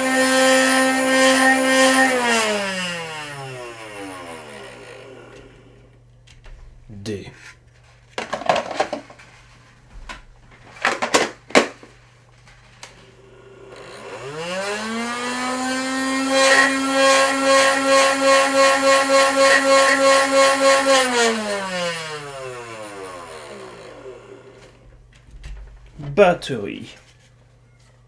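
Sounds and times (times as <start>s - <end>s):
flywheel motors whining: 0.0s - 6.0s, 13.1s - 24.8s.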